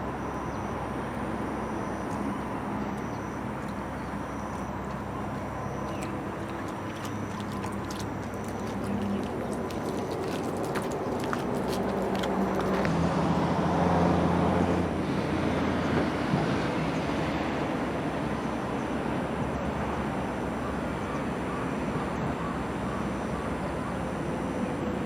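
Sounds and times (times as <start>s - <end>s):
road noise: 0.0s - 25.0s
vehicle engine passing: 5.1s - 18.3s.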